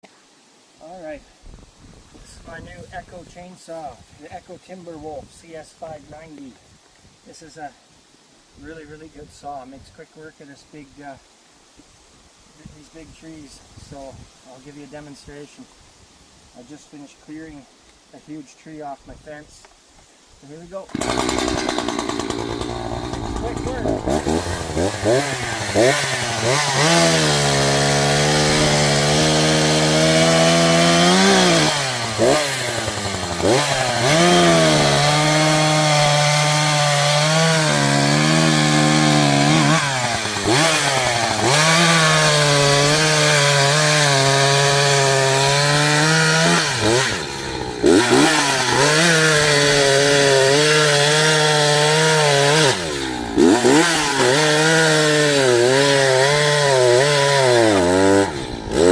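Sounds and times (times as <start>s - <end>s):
chainsaw cutting tree: 20.9s - 58.9s.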